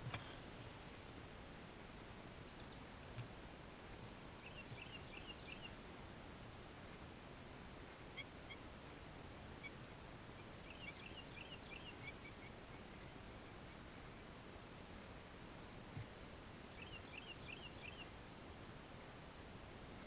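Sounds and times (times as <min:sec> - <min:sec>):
faint bird chirping: 0:04.4 - 0:05.8, 0:09.6 - 0:14.0, 0:16.7 - 0:18.2.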